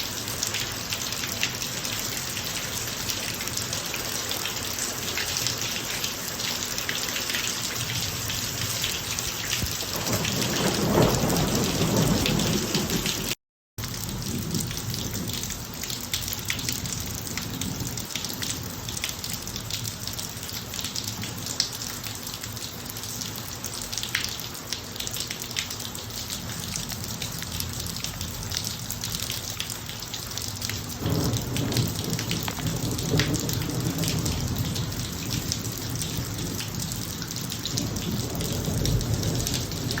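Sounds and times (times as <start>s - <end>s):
heavy rain on a driveway: 0.0s - 40.0s
thunder rolling: 9.6s - 13.4s, 31.0s - 36.7s, 37.7s - 40.0s.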